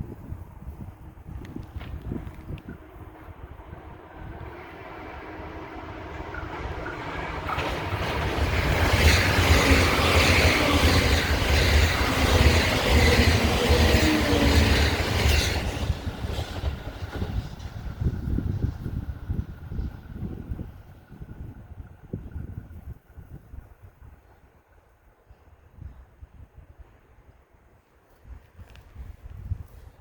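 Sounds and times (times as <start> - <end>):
electric train passing: 0.0 - 23.4
wind buffeting microphone: 0.0 - 24.5, 28.1 - 30.0.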